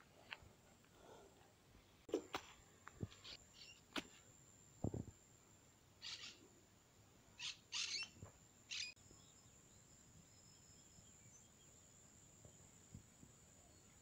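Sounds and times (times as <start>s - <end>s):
faint steady hiss: 0.0s - 14.0s
short high bird chirps: 6.0s - 6.4s, 7.4s - 9.0s.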